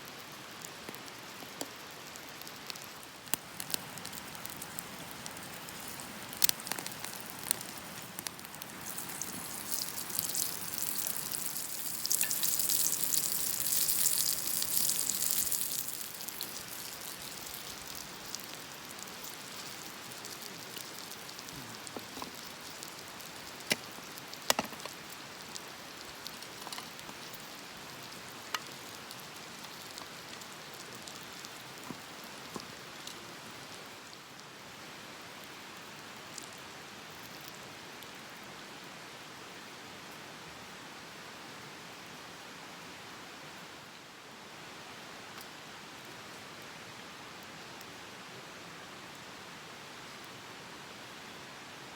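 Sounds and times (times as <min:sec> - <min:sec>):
campfire crackling and popping: 0:00.5 - 0:33.2
fire hissing: 0:02.4 - 0:31.2.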